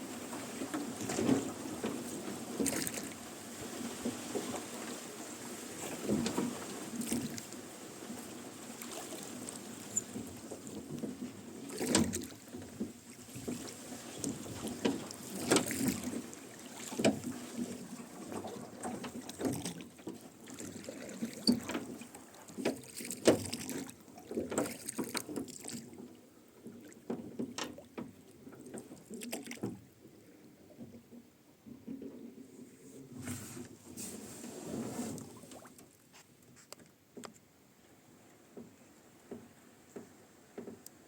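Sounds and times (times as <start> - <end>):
oar blades splashing: 0.0 - 26.1, 26.7 - 29.8.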